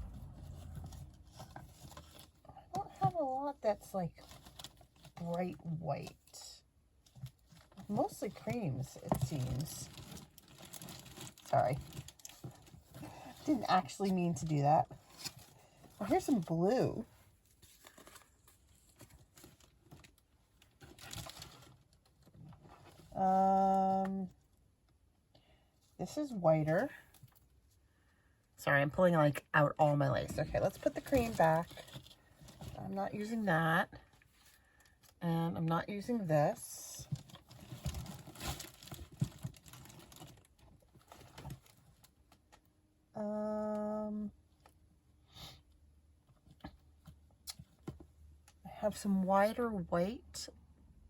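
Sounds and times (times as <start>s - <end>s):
loud low pitched tone: 0.0s - 1.8s
rustling of craft materials: 0.0s - 27.9s, 28.9s - 35.2s, 35.8s - 43.0s.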